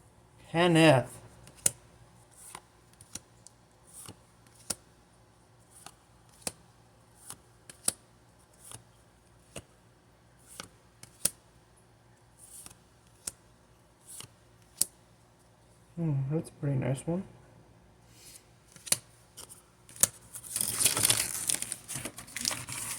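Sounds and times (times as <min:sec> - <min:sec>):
cards clicking and snapping: 0:01.4 - 0:01.8, 0:02.4 - 0:03.3, 0:04.0 - 0:04.8, 0:05.7 - 0:06.6, 0:07.2 - 0:08.0, 0:10.5 - 0:11.4, 0:12.5 - 0:13.4, 0:14.1 - 0:15.0, 0:18.7 - 0:22.9.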